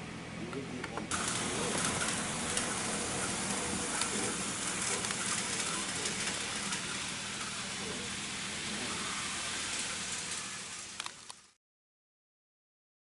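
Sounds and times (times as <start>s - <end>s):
model train motor and wheels hiss: 1.1s - 11.6s.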